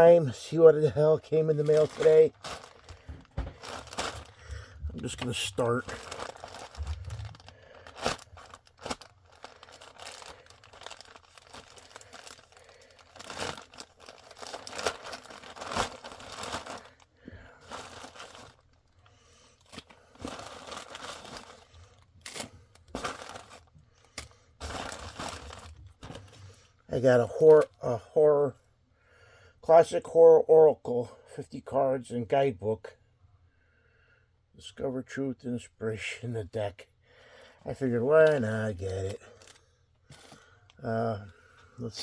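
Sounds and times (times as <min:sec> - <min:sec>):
package tearing and rustling: 0:01.4 - 0:23.8, 0:24.6 - 0:26.4.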